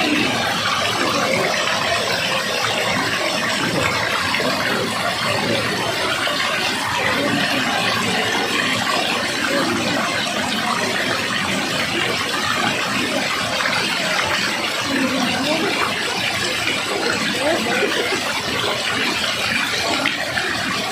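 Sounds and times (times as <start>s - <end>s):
fast-flowing water rushing: 0.0s - 20.9s.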